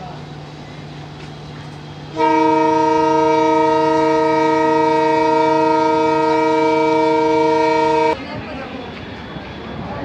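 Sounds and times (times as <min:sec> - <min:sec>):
locomotive horn blast: 0:02.1 - 0:08.2.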